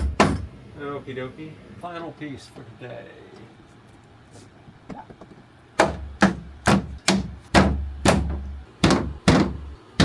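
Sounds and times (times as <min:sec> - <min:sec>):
knocks on wooden wall panel: 0:05.8 - 0:10.0.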